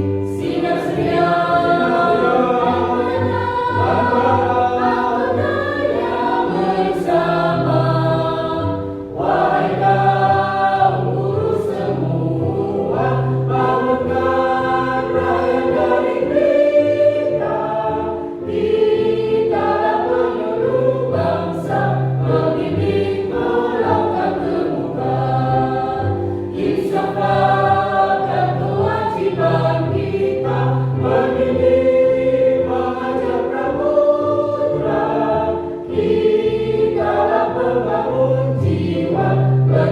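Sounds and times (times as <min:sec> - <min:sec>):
choir singing with accompaniment: 0:00.0 - 0:39.9.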